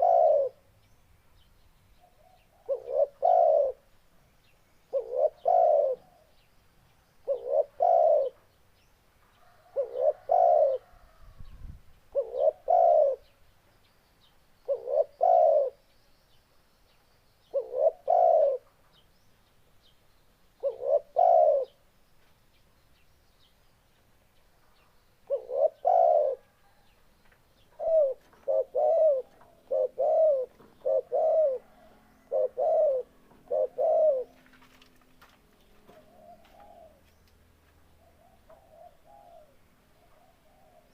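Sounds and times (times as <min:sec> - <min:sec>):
dove cooing: 0:00.0 - 0:00.7, 0:02.1 - 0:03.9, 0:04.9 - 0:06.4, 0:07.2 - 0:08.5, 0:09.5 - 0:11.4, 0:12.1 - 0:13.3, 0:14.7 - 0:15.8, 0:17.5 - 0:18.7, 0:20.6 - 0:21.8, 0:25.2 - 0:26.9, 0:27.7 - 0:34.9, 0:35.8 - 0:37.1, 0:38.0 - 0:40.9.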